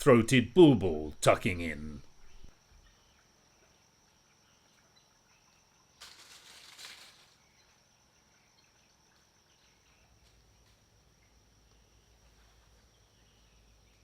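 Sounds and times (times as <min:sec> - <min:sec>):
rustling noise: 0:06.0 - 0:07.5.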